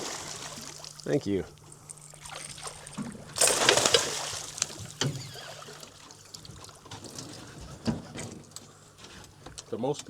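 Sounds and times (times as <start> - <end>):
fish splashing at the surface: 0.0 - 1.1, 1.9 - 6.2
water dripping off a net: 1.8 - 5.1.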